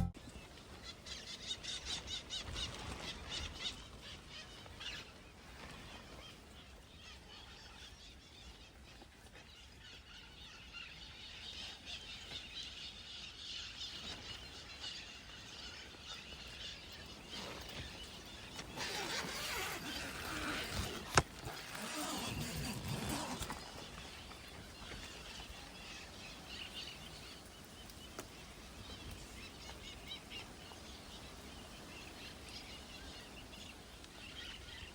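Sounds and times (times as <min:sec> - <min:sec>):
birds chirping: 0:00.0 - 0:00.5, 0:09.6 - 0:34.9.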